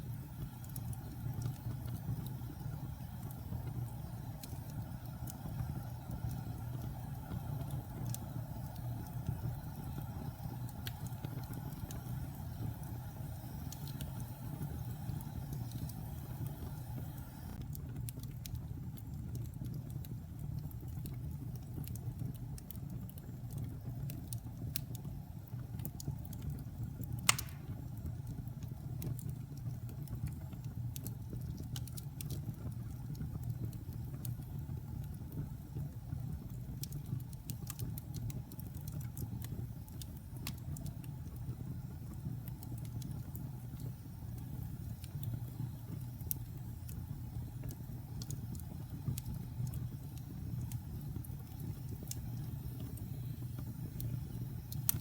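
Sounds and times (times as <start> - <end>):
wood fire crackling: 0.0 - 55.0
loud pop of fire: 27.2 - 28.0.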